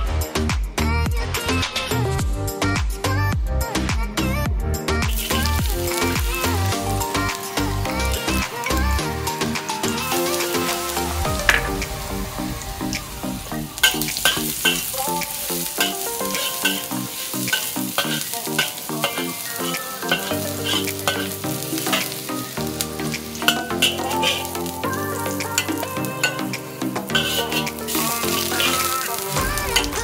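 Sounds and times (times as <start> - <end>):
background music with beat: 0.0 - 30.0
metal spatula stirring in wok: 5.1 - 8.9, 13.8 - 30.0
garlic sizzling in oil: 5.1 - 30.0.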